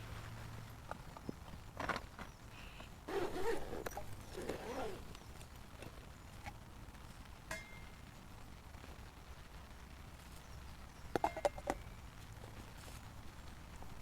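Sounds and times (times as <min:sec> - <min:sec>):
sharp clink: 0:07.5 - 0:07.9.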